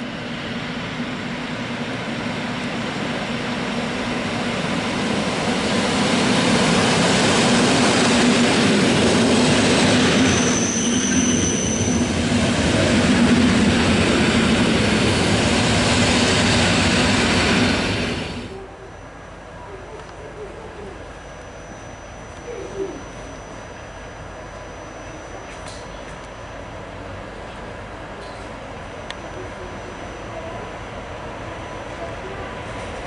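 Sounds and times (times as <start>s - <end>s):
train rolling noise: 0.0s - 33.0s
high-pitched wheel squeal: 10.0s - 12.2s, 21.2s - 26.5s.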